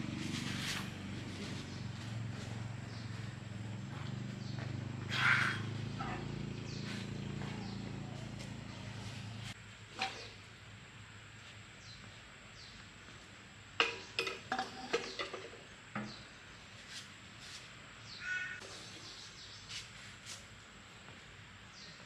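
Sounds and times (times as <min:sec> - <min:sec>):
faint bird calls: 0:00.6 - 0:10.4, 0:18.0 - 0:19.8.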